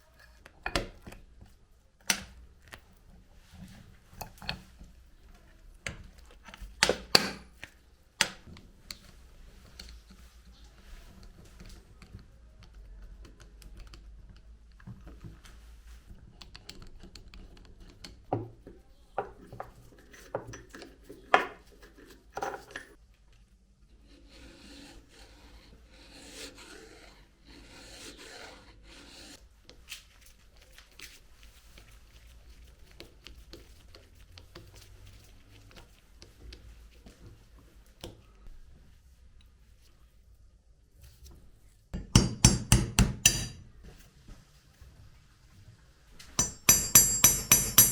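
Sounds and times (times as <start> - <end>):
scratchy rubbing: 23.9 - 29.4.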